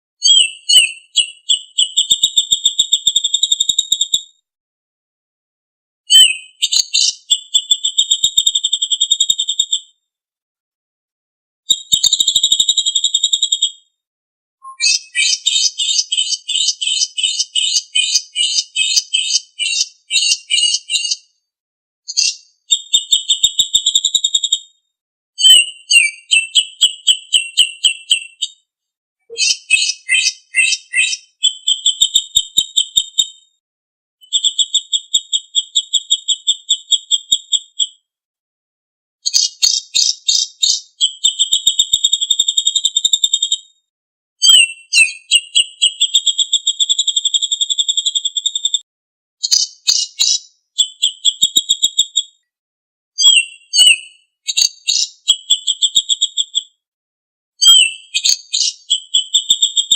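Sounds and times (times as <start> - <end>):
small bird trilling: 6.1 - 7.4, 14.6 - 21.3, 22.1 - 23.3, 29.3 - 31.7, 39.3 - 40.9, 49.4 - 51.2, 53.2 - 55.6, 57.6 - 59.1.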